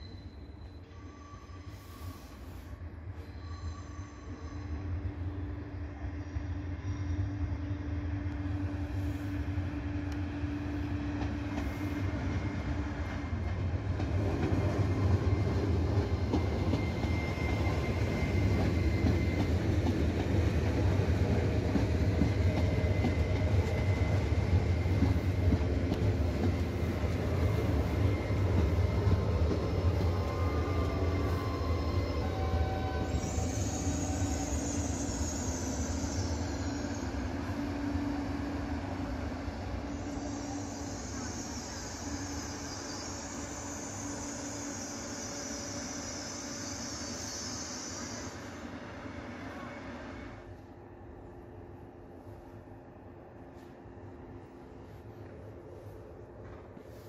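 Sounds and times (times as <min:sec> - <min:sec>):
high wavering wheel squeal: 0:00.0 - 0:02.4, 0:03.1 - 0:05.5, 0:14.6 - 0:20.0, 0:26.5 - 0:38.2, 0:39.5 - 0:49.8
faint steady whine: 0:00.0 - 0:57.0
train wheels rumbling on rails: 0:00.0 - 0:57.0.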